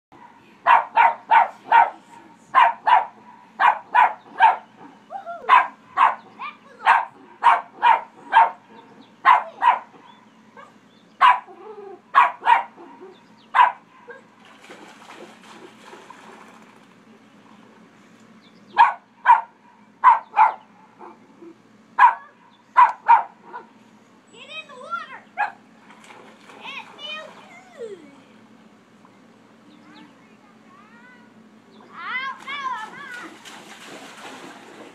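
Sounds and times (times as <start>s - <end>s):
dog barking: 0.2s - 4.7s, 5.5s - 8.6s, 9.2s - 11.6s, 12.2s - 14.2s, 18.8s - 21.2s, 22.0s - 23.7s, 25.4s - 25.6s.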